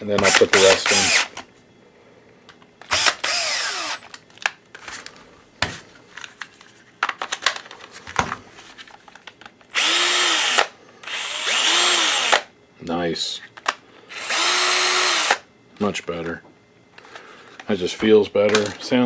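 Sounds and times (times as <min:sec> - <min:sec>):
cordless drill spinning up and winding down: 0:00.2 - 0:01.3, 0:02.9 - 0:04.1, 0:09.7 - 0:12.5, 0:14.1 - 0:15.4.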